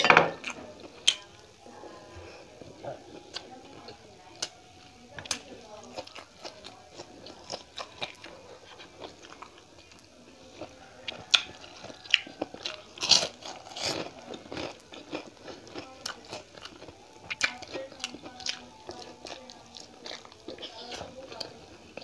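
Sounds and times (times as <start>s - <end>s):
crisp bites and wet chewing: 6.0s - 22.0s.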